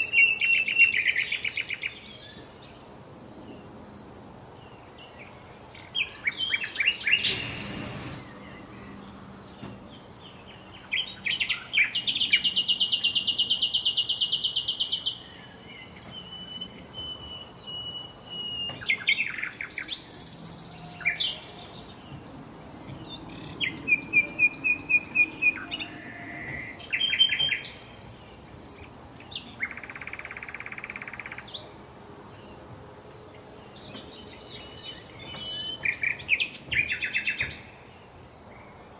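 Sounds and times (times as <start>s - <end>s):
songbirds chirping: 0.0s - 38.9s
bird trill: 5.8s - 9.1s, 10.3s - 28.0s, 29.2s - 31.6s, 33.6s - 37.8s
buzzy bird call: 6.9s - 8.7s.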